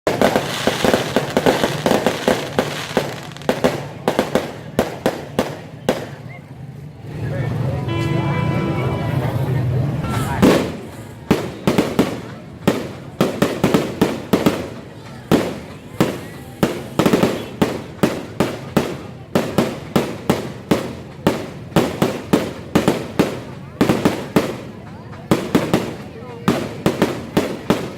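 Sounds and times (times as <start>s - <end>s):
fireworks bangs and crackle: 0.0s - 7.8s, 10.0s - 27.9s.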